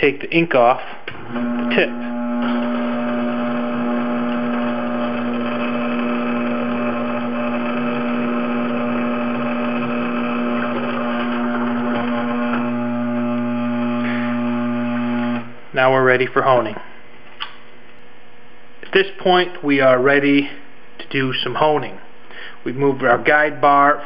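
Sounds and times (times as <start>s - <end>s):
sharpening machine motor humming: 1.1s - 15.6s.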